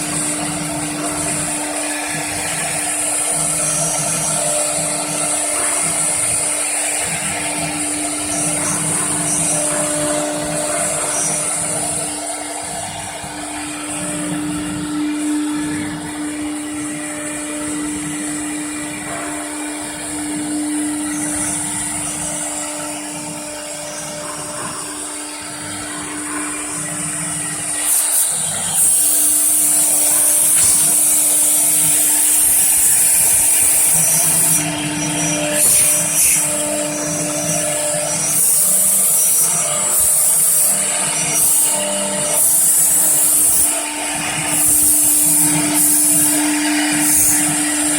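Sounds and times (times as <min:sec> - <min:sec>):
machine noise: 0:00.0 - 0:47.9
router spindle whining: 0:00.0 - 0:47.9
loud high hiss: 0:25.0 - 0:47.9.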